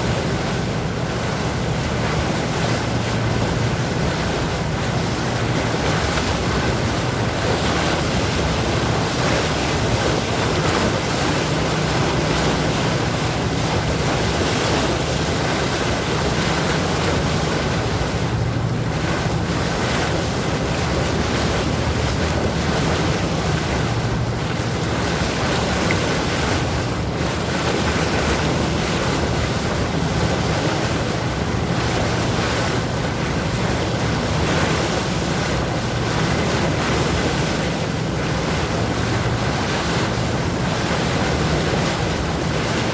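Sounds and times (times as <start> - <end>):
sea waves washing: 0.0 - 42.9
wind buffeting microphone: 0.0 - 42.9.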